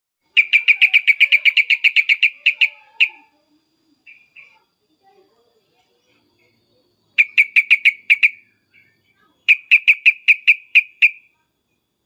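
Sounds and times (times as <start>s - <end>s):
bulbul sharp calls: 0.3s - 4.6s, 7.1s - 11.4s.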